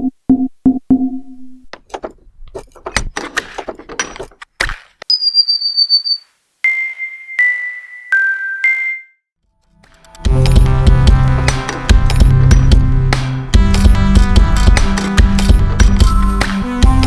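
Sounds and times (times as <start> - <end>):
assorted clicks and knocks: 0.3 - 5.0, 9.8 - 16.6
high whistle-like tone: 5.1 - 9.2.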